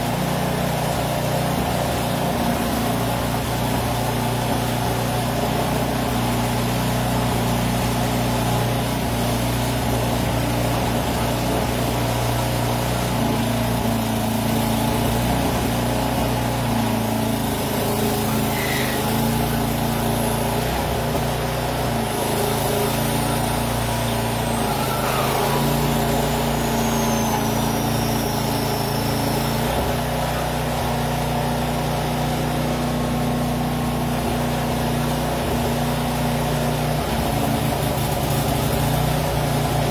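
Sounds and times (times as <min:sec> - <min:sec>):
engine running steadily: 0:00.0 - 0:39.9
faint high whistle: 0:18.4 - 0:19.1, 0:24.2 - 0:29.9.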